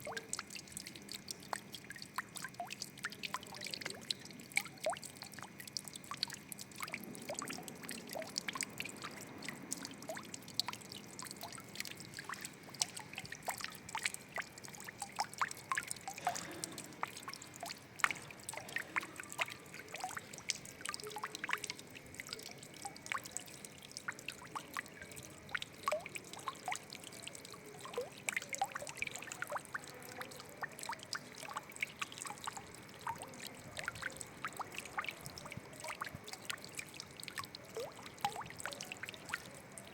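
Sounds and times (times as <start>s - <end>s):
water drips and plinks: 0.0s - 39.9s
water trickling and splashing: 0.0s - 39.9s.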